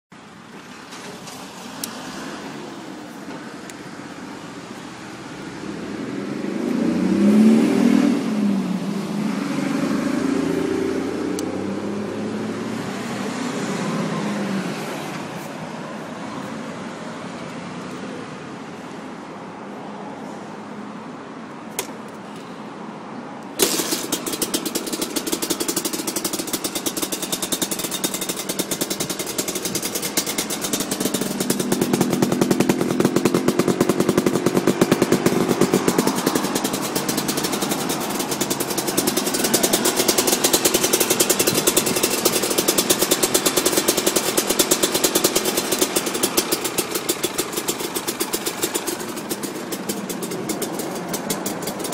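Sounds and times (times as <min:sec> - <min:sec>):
two-stroke engine running: 0:23.6 - 0:51.9.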